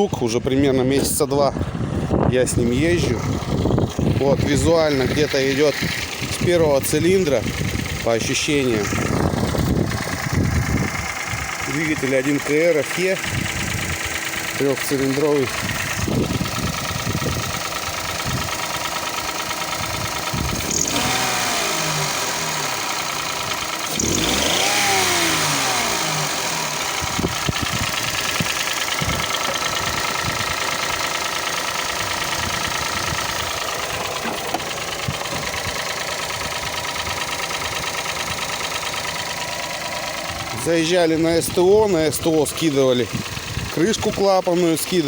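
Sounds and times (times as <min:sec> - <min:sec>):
engine running with a knock: 0:02.6 - 0:45.0.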